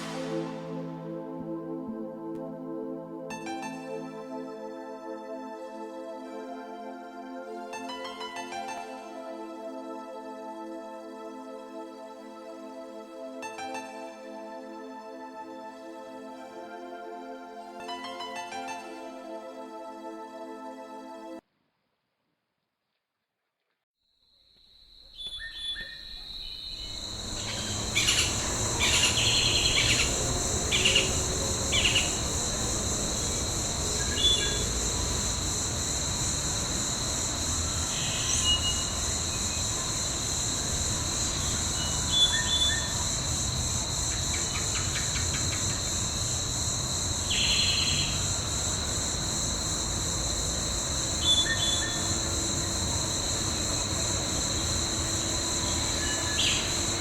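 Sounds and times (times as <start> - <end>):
insect chorus: 0.0 - 1.2, 24.0 - 57.0
bird chirps: 25.0 - 32.3.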